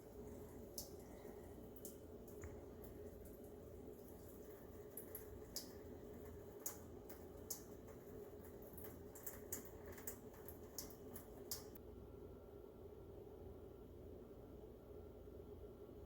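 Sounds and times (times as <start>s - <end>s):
small drips and ticks: 0.0s - 11.8s
water trickling onto wet sand: 0.0s - 11.8s
low steady hiss: 0.0s - 16.0s.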